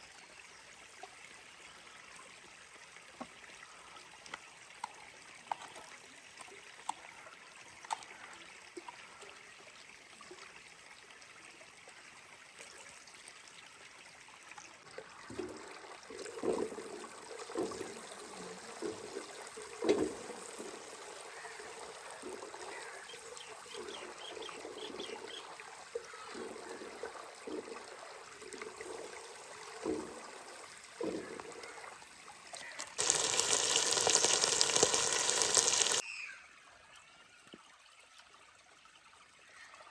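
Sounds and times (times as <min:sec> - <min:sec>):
water trickling: 0:00.0 - 0:36.0
water gushing: 0:14.2 - 0:36.0
water splashing: 0:15.3 - 0:36.0.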